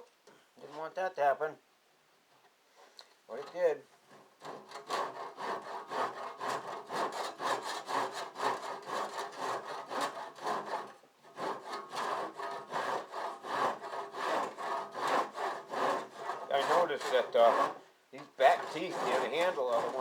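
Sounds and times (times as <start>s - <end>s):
handsaw cutting through door: 4.1s - 20.0s.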